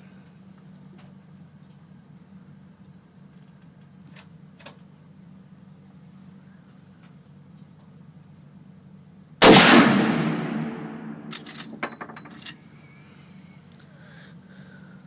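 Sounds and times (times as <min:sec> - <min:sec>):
rifle shot: 0:09.4 - 0:11.4.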